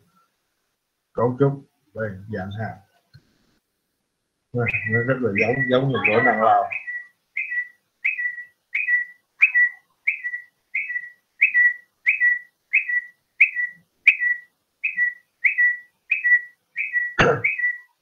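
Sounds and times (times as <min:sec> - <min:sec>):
bird chirping: 0:04.6 - 0:18.0.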